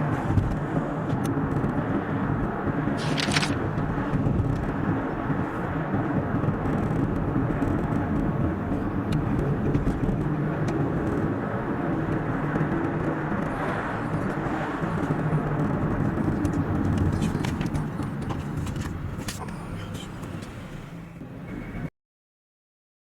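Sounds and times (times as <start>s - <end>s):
car tyre rumble: 0.0s - 21.8s
car engine hum: 0.0s - 21.9s.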